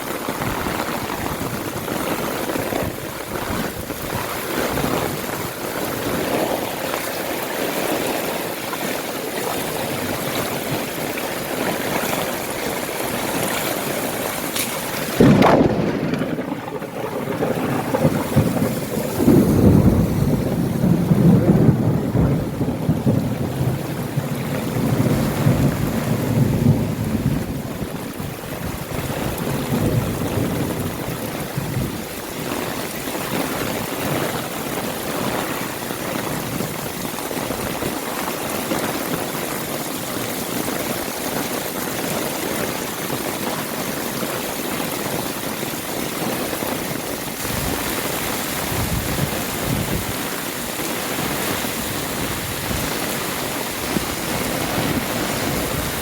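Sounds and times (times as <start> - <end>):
heavy rain: 0.0 - 56.0
rolling thunder rumble: 0.2 - 7.5, 9.9 - 35.1, 46.8 - 56.0
thunderclap: 10.4 - 32.7, 47.3 - 56.0.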